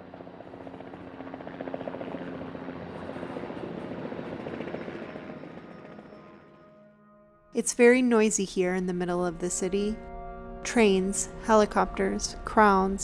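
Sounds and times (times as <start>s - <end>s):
helicopter rotor chopping: 0.0s - 6.1s.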